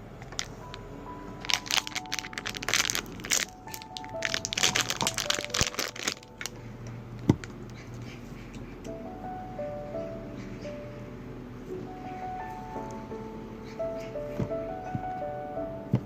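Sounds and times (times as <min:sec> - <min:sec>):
soft piano music: 0:00.0 - 0:16.0
crinkling and crackling handling: 0:00.2 - 0:08.6.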